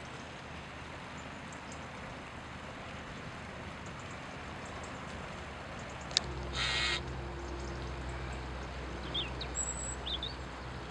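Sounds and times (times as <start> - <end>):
steady low hum: 1.8 - 10.9
harsh bird call: 6.5 - 7.0
faint bird chirps: 6.6 - 7.1.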